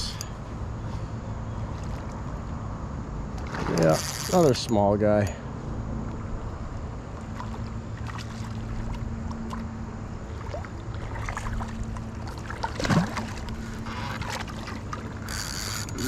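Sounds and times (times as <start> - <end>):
water splashing around kayak: 3.3 - 4.7, 6.8 - 16.0.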